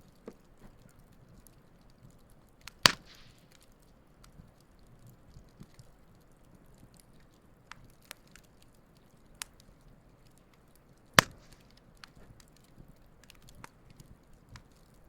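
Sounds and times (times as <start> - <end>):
campfire crackling: 0.0 - 15.0
loud sharp pop: 2.8 - 3.4, 11.2 - 11.7.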